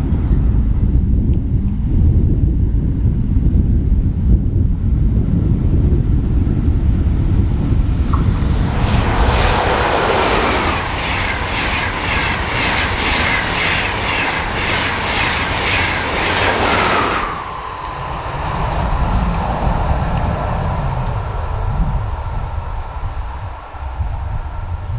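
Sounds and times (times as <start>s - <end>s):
wind buffeting microphone: 0.0s - 24.9s
train passing at speed: 6.0s - 24.9s
train wheels clattering: 9.0s - 19.2s.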